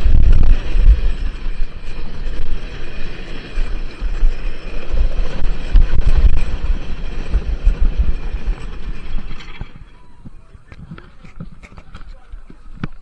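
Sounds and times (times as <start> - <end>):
roller coaster rumbling on track: 0.0 - 13.0
wind buffeting microphone: 0.0 - 13.0.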